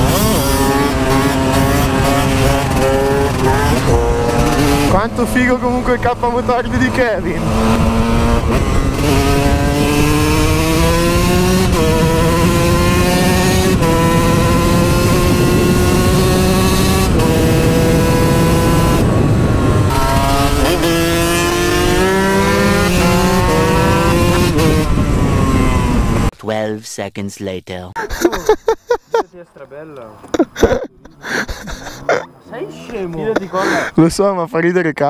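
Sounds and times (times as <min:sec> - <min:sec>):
motorcycle engine revving through gears: 0:00.0 - 0:26.3.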